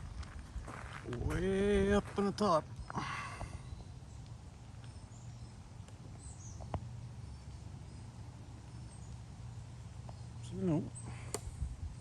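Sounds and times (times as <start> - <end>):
faint bird chirps: 2.4 - 12.0.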